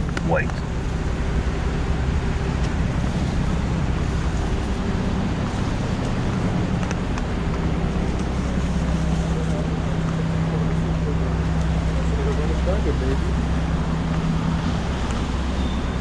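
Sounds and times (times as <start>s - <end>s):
traffic engines rumbling: 0.0s - 16.0s
traffic hiss: 0.1s - 16.0s.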